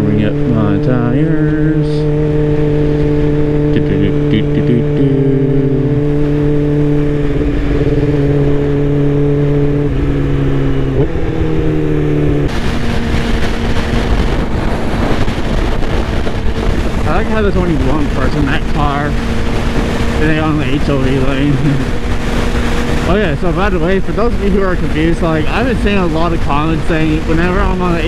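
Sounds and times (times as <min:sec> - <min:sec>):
motorcycle engine running: 0:00.0 - 0:28.0
wind noise on microphone: 0:00.0 - 0:28.0.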